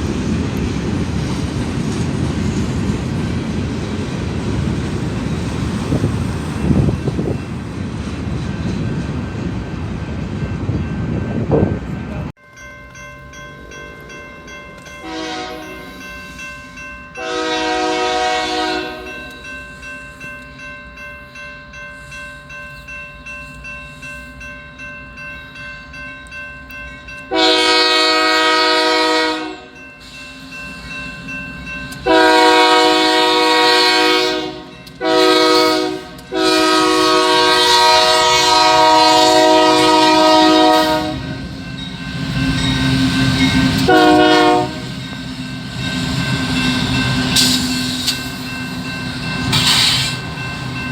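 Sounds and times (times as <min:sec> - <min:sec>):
train rumbling: 0:00.0 - 0:50.9
locomotive air horn blasts: 0:15.0 - 0:15.8, 0:17.2 - 0:19.1, 0:27.3 - 0:29.8, 0:32.0 - 0:41.5, 0:43.7 - 0:44.9.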